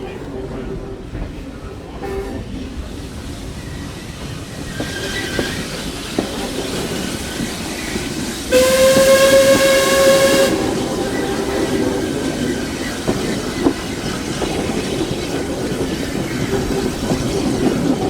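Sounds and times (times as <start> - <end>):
train clattering on track: 0.0 - 18.0
steam locomotive whistle blast: 8.5 - 12.2.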